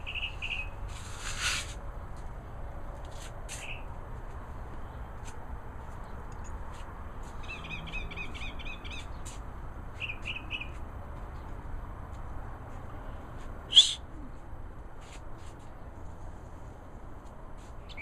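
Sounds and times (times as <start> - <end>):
small songbird chirping: 0.0 - 0.8, 7.4 - 9.4, 10.0 - 10.8.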